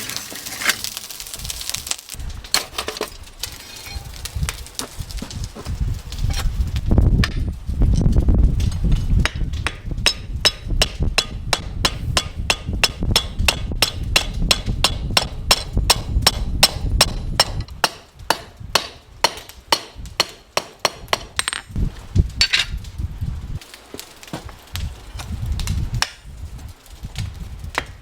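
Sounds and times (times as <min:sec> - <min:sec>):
hammer striking: 0:09.2 - 0:21.7.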